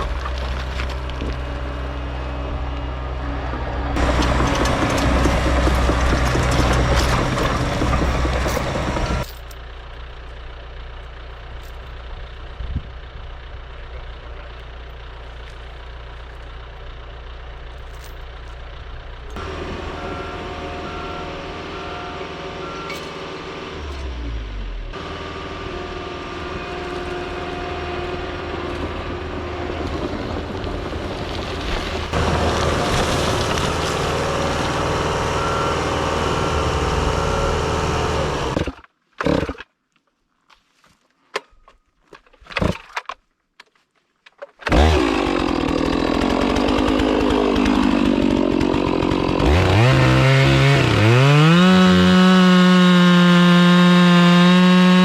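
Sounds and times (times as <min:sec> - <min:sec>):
chainsaw cutting wood: 0:04.0 - 0:09.3, 0:24.9 - 0:39.7, 0:44.6 - 0:55.0.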